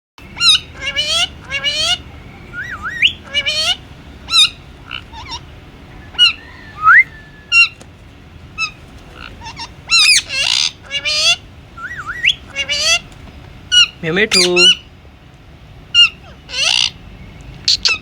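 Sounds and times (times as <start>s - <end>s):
parrot shrill calls: 0.2s - 7.8s, 8.6s - 13.1s, 13.7s - 14.9s, 15.9s - 17.0s, 17.7s - 18.0s
parrot rising whistle: 0.4s - 7.8s, 9.5s - 13.0s.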